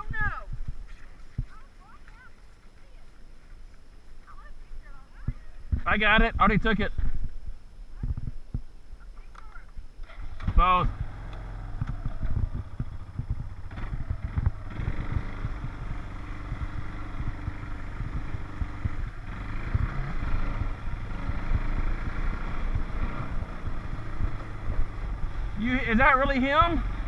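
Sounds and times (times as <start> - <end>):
irregular low thumps: 4.8 - 8.8, 10.5 - 27.0
atv engine running: 9.4 - 27.0.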